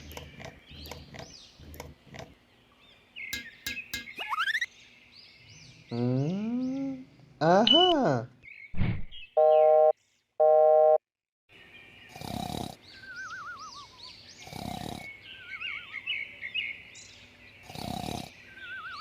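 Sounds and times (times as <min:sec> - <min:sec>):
high bird-like chirps: 0:03.2 - 0:04.7, 0:12.9 - 0:16.2, 0:18.5 - 0:19.0
wavering falling whistles: 0:13.0 - 0:14.1.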